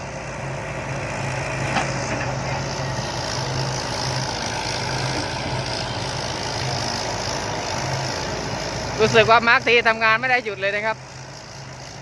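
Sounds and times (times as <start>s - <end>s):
diesel machinery humming: 0.0s - 12.0s.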